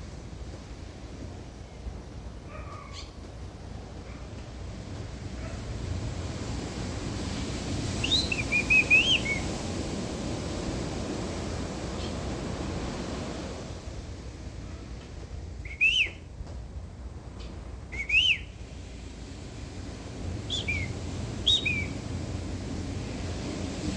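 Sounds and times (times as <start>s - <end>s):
wind or surf noise: 0.0s - 23.9s
person whistling bird calls: 8.0s - 9.5s, 15.6s - 16.2s, 17.9s - 18.5s, 20.5s - 22.0s
birds calling: 8.0s - 9.7s, 11.9s - 12.4s, 20.5s - 22.0s.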